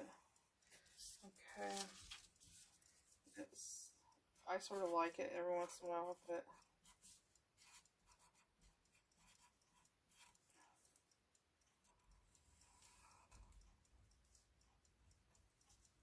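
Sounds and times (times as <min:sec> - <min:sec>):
marker scratching on paper: 0:05.6 - 0:08.5, 0:09.2 - 0:10.3.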